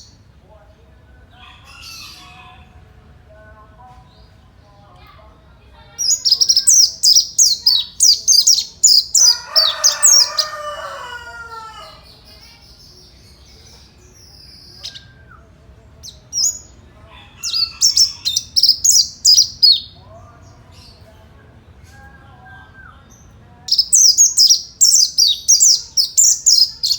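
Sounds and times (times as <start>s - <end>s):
bird twittering chirps: 5.9s - 16.8s, 17.4s - 20.0s, 22.0s - 26.9s.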